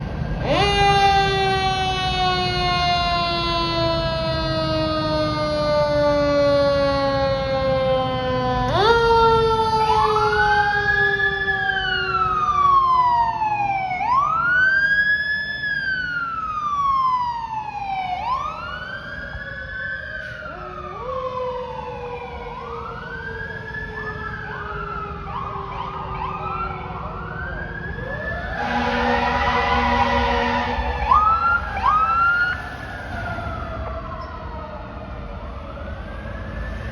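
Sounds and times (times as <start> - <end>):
truck engines rumbling: 0.0 - 36.9
electronic siren wail: 0.3 - 36.9
mechanical siren winding down: 0.4 - 14.6, 15.5 - 36.9.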